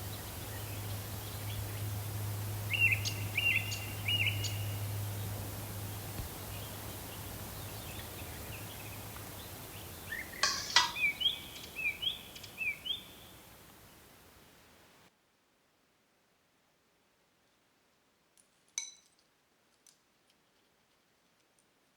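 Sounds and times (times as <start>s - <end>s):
birds chirping: 0.0s - 14.6s
outdoor background noise: 0.0s - 21.9s.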